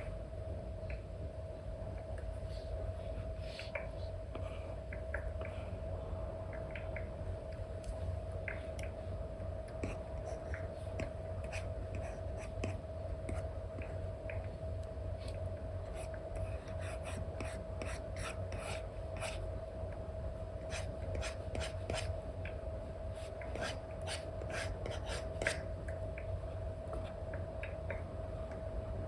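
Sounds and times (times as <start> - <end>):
steady hum: 0.0 - 29.0
stylus scratching on screen film: 20.7 - 22.1, 23.2 - 25.6.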